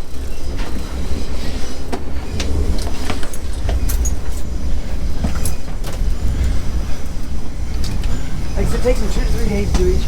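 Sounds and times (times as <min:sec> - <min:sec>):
train rumbling: 0:00.0 - 0:10.0.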